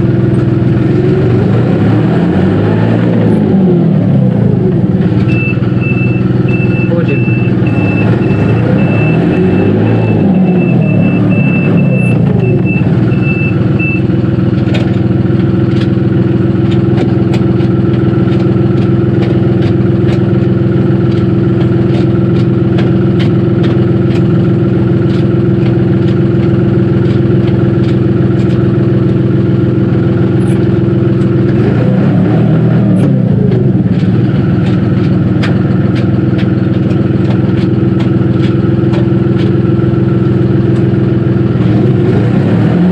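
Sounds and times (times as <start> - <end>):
tractor diesel engine running: 0.0 - 42.9
reverse warning beeper: 5.3 - 14.1.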